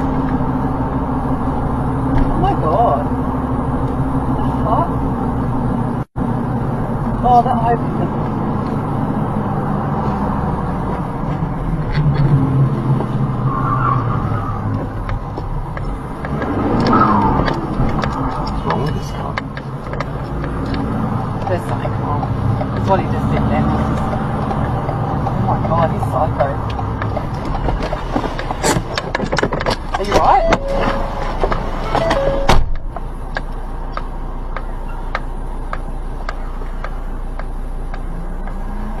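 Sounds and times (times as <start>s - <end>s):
car engine hum and road noise: 0.0s - 39.0s
low cabin hum: 24.0s - 39.0s.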